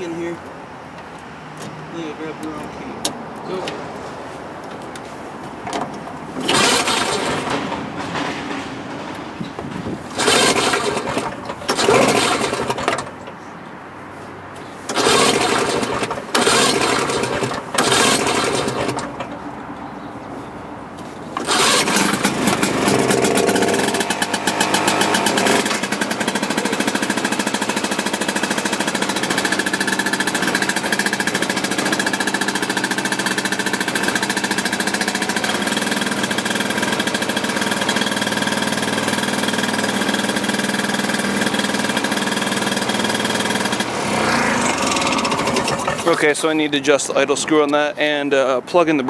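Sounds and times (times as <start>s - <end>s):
snowmobile two-stroke engine revving: 6.4s - 7.5s, 10.1s - 12.8s, 14.9s - 19.1s, 21.4s - 46.3s.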